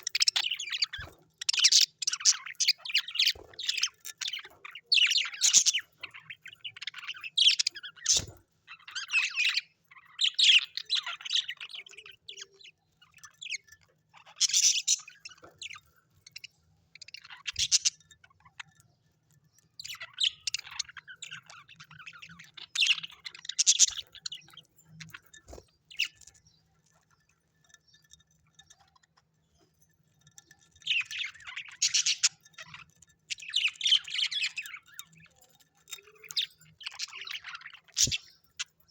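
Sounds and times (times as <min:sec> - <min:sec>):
birds chirping and tweeting: 0:00.0 - 0:38.9.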